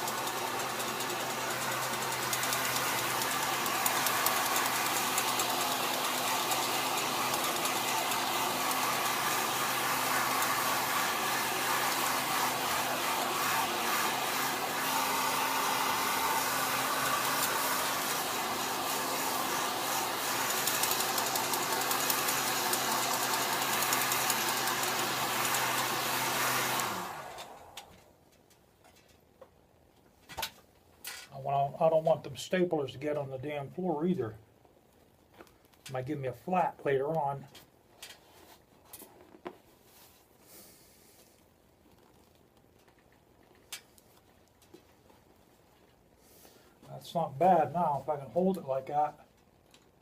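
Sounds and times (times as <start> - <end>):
heat gun blowing: 0.0 - 28.0, 40.3 - 41.5
fan winding down: 0.0 - 28.1.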